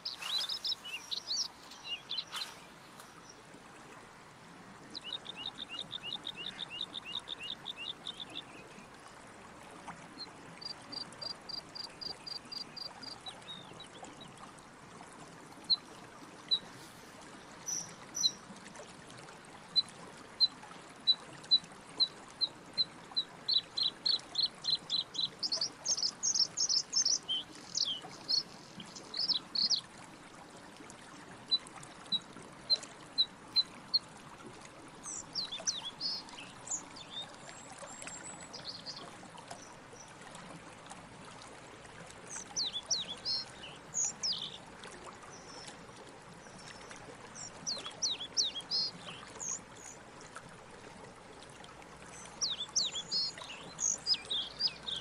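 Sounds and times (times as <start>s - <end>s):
small birds chirping: 0.0s - 3.4s, 5.0s - 8.6s, 23.5s - 29.8s, 35.1s - 37.3s, 42.3s - 44.6s, 47.4s - 50.0s, 52.2s - 55.0s
faint steady hiss: 0.0s - 21.9s.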